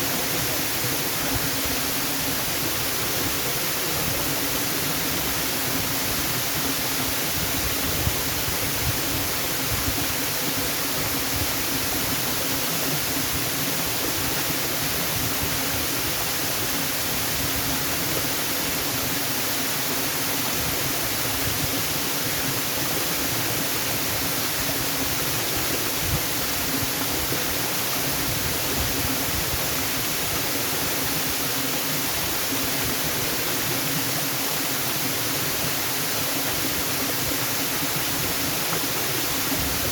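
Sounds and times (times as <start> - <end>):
waterfall hissing: 0.0 - 39.9.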